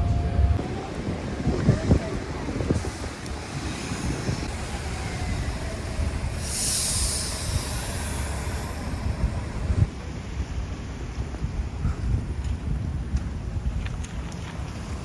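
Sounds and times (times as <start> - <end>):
train rumbling on rails: 0.0 - 15.0
short high hiss: 6.3 - 9.8.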